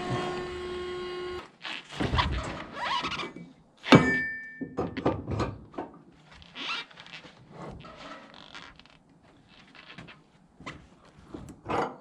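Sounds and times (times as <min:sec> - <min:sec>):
sharp metallic clank: 0:03.9 - 0:04.7.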